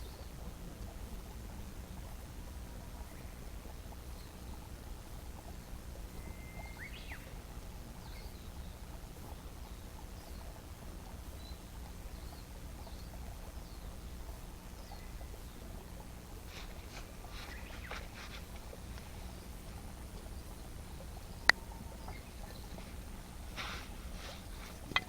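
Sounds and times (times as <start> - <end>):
birds chirping: 0.0 - 25.0
steady low hum: 0.0 - 25.0
sweeping bird call: 16.4 - 25.0.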